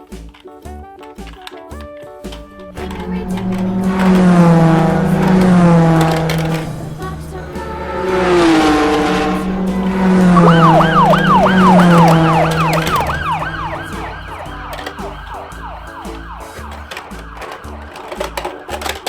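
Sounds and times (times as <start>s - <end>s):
long falling pitched tone: 2.6s - 17.0s
electronic toy siren swooping: 2.7s - 18.7s.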